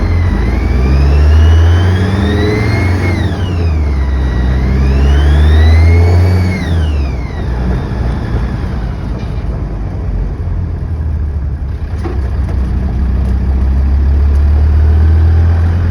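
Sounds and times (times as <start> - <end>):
high whirring whine: 0.0 - 10.6
diesel engine idling: 0.0 - 14.4.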